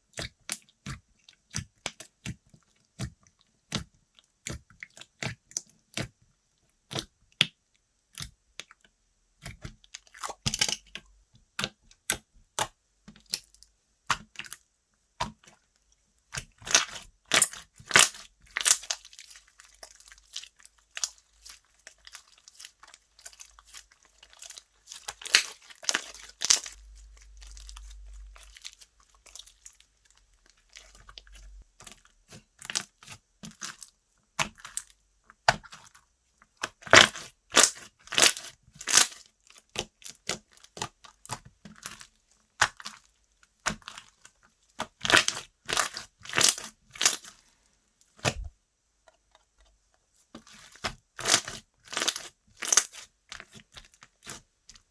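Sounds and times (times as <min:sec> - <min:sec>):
slime popping and crackling: 0:16.5 - 0:29.8, 0:36.6 - 0:42.0, 0:44.8 - 0:47.4, 0:50.7 - 0:54.4.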